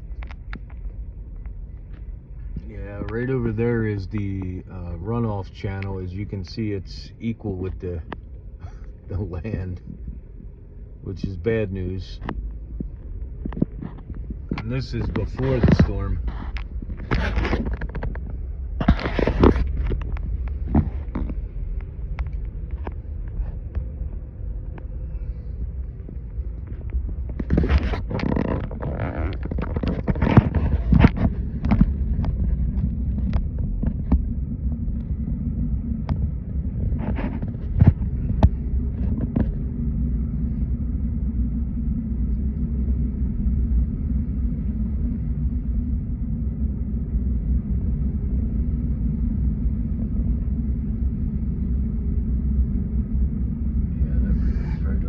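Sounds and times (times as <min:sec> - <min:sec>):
sharp clicks and knocks: 0:00.0 - 0:03.2, 0:12.2 - 0:23.9, 0:26.0 - 0:34.3
car engine and road rumble: 0:00.0 - 0:51.1.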